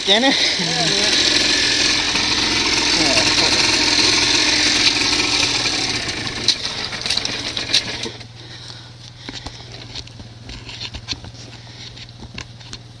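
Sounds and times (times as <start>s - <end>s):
dirt bike engine idling: 0.0s - 10.8s.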